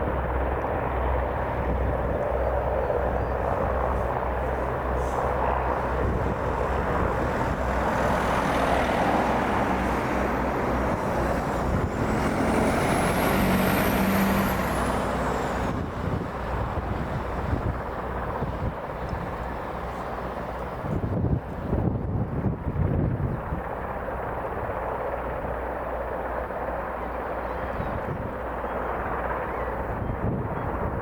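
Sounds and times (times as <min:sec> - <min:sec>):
high turbine whine: 0:00.0 - 0:25.5
helicopter engine and rotor roar: 0:00.0 - 0:31.0.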